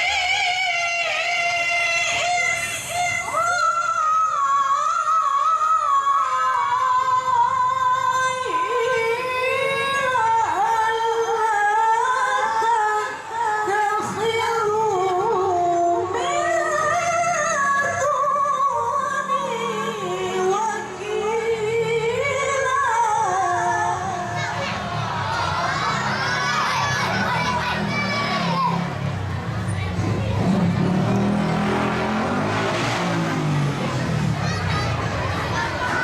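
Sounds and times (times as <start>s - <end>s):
woman chanting recitation: 0.0s - 27.4s.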